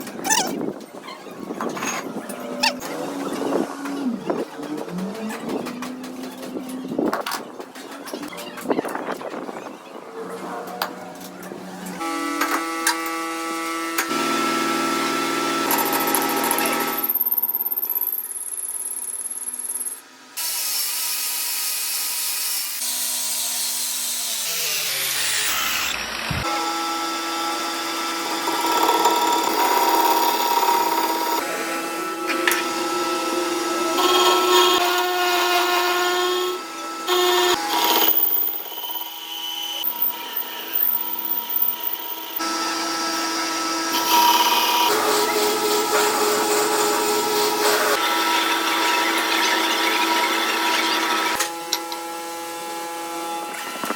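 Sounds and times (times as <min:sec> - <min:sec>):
metalworking power tools cutting: 0:11.2 - 0:53.9
motor spinning down: 0:36.4 - 0:44.9.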